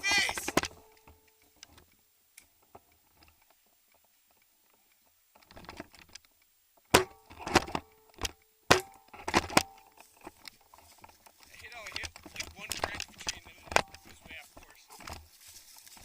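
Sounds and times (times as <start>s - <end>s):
sharp cracks and clacks: 5.4s - 14.4s.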